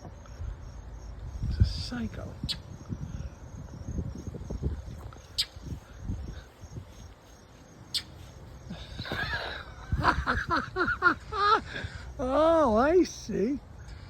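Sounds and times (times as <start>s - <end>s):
bird harsh calls: 5.2s - 7.2s, 7.8s - 9.9s.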